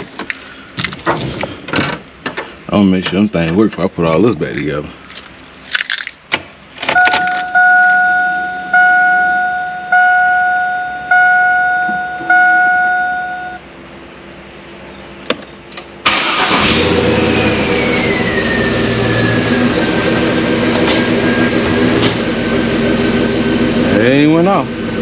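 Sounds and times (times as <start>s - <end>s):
truck engine starting and running: 5.1s - 25.0s
dashboard warning chime dinging: 6.9s - 13.6s
engine whine falling in pitch: 6.9s - 14.3s, 15.0s - 25.0s.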